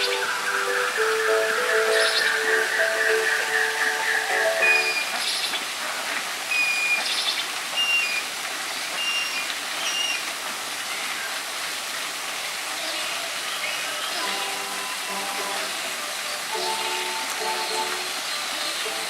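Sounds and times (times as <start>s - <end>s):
running water rushing: 0.0s - 19.0s
short high-pitched chirps: 4.5s - 5.2s.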